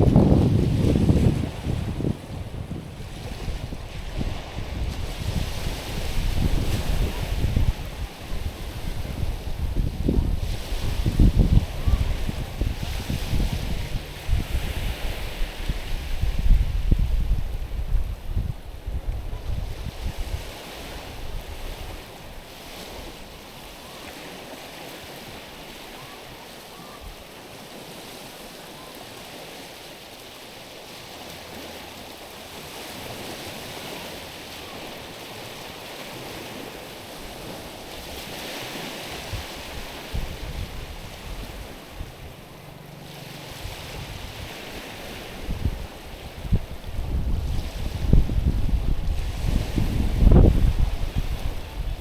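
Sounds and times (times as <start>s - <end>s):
wind rumble on microphone: 0.0s - 25.8s, 31.1s - 52.0s
small waves lapping over pebbles: 20.4s - 46.8s.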